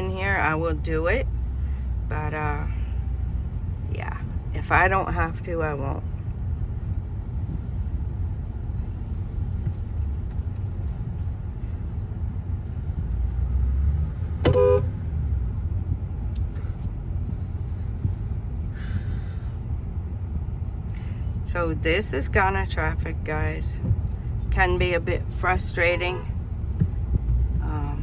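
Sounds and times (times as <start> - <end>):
car driving interior rumble: 0.0 - 28.0
car horn toot: 14.4 - 15.0.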